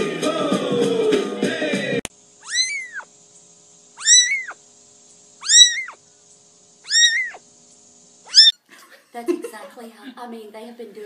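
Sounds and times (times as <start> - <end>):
cat meowing: 2.4 - 3.1, 4.0 - 4.6, 5.4 - 6.0, 6.8 - 7.4, 8.3 - 8.6.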